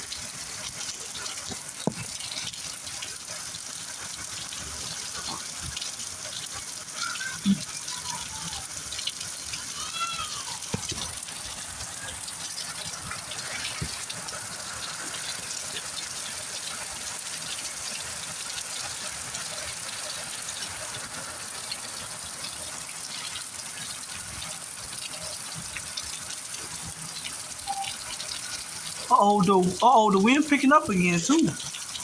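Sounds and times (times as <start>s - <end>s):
raindrops ticking and splashing: 0.0s - 32.0s
heavy rain hiss: 26.6s - 32.0s.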